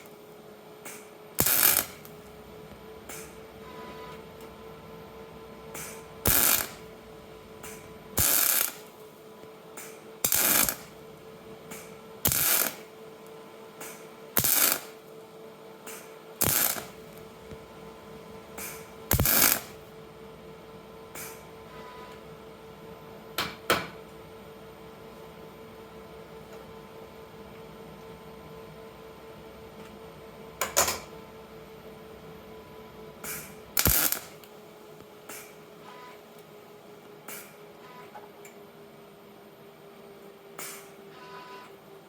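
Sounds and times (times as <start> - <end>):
steady hum: 0.0 - 37.8
welder crackling bursts: 0.9 - 3.6, 4.3 - 9.1, 9.8 - 15.2, 15.9 - 20.0, 33.2 - 34.5.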